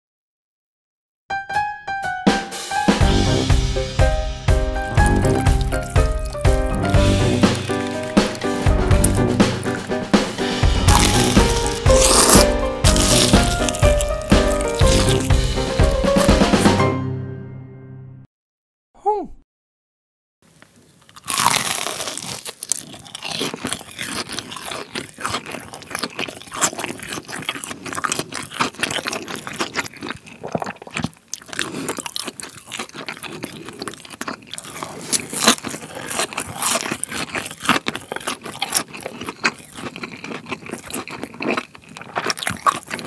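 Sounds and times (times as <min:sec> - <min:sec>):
crunchy biting and chewing: 0:04.9 - 0:16.8, 0:21.0 - 0:43.0.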